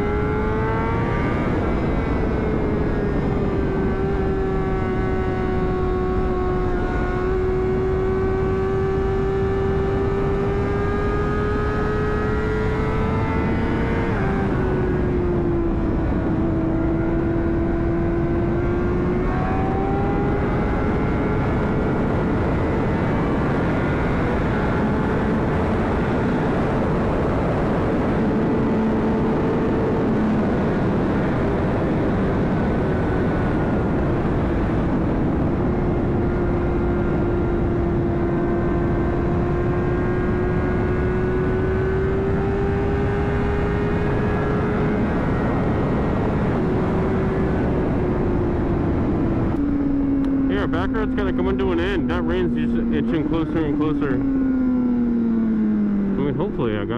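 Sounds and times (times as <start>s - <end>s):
motorcycle engine cruising: 0.0s - 56.9s
wind rush: 40.6s - 54.2s.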